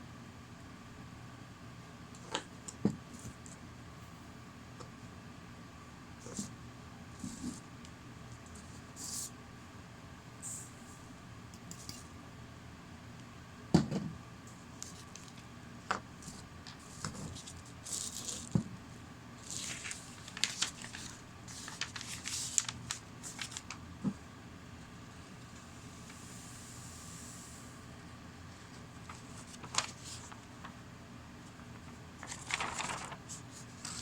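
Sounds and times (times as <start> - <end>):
rustling or scraping: 32.2 - 33.2.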